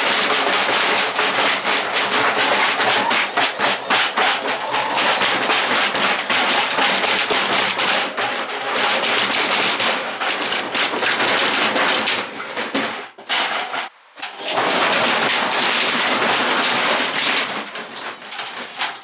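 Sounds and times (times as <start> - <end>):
metal clattering in spinning drum: 0.0 - 13.9.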